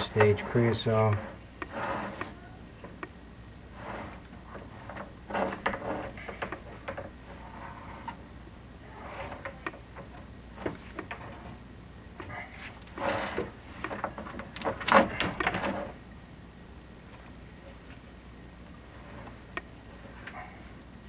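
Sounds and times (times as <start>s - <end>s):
camera rod scraping flue walls: 0.0s - 8.3s, 8.9s - 11.6s, 12.2s - 16.0s, 18.9s - 20.3s.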